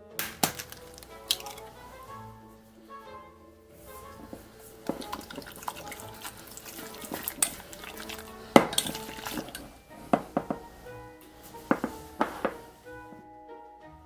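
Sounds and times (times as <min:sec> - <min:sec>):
soft background music: 0:00.0 - 0:14.0
utensils and dishes clinking: 0:00.2 - 0:02.3, 0:03.8 - 0:12.9.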